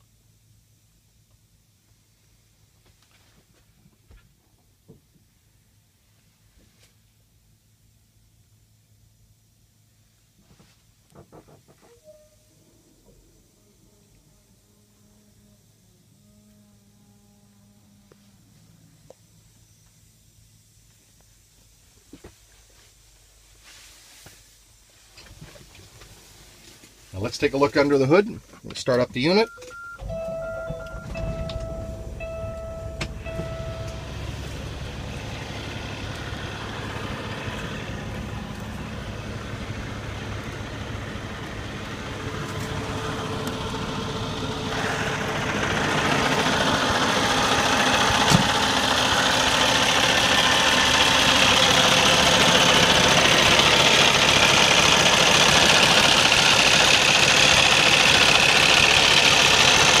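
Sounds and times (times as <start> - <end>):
diesel engine idling: 27.2 - 60.0
steady tone: 29.5 - 45.8.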